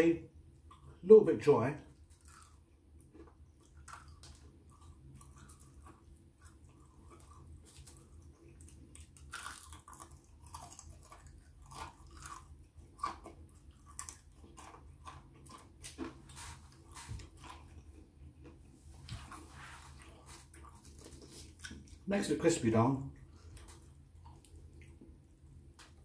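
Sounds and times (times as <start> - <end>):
person chewing crunchy food: 1.9 - 22.1, 23.2 - 26.0.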